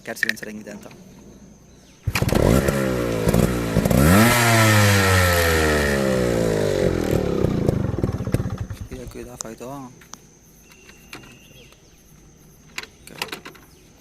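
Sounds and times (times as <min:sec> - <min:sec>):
two-stroke motorcycle engine revving: 0:02.0 - 0:09.2.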